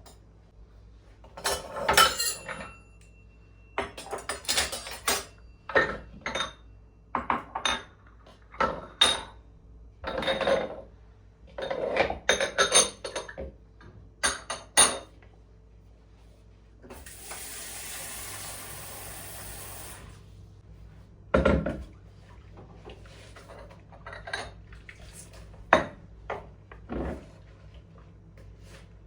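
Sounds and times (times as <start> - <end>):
dishes and cutlery clattering: 1.3 - 3.0, 3.8 - 6.6.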